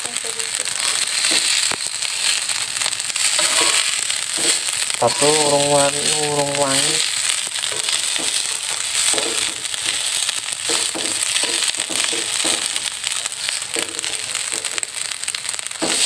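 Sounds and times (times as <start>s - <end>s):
fried rice sizzling in a wok: 0.0s - 16.0s
metal spatula scraping a wok: 3.2s - 4.8s.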